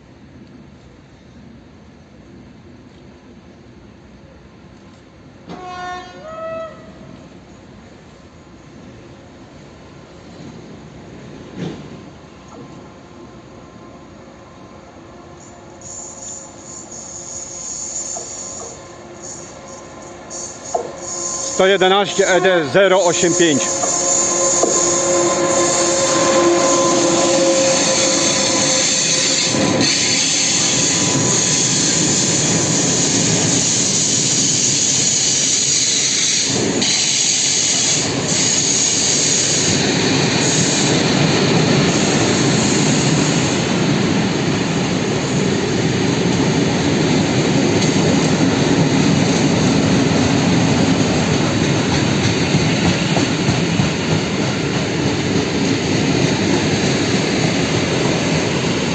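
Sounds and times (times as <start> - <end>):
freight train wheels on rail: 0.0 - 58.9
steady tones: 18.5 - 29.8.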